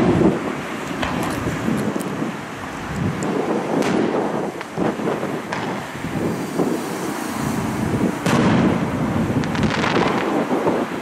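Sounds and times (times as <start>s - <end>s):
firework crackling: 0.0s - 11.0s
firework bang: 3.7s - 6.8s, 8.1s - 10.6s.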